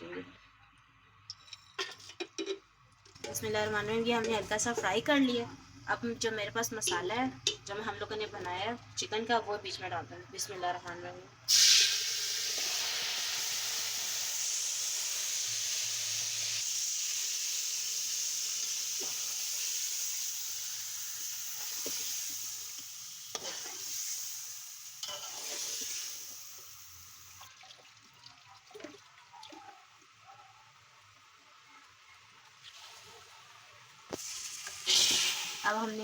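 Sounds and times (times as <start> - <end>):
food sizzling in a pot: 11.5 - 27.5, 31.1 - 36.0.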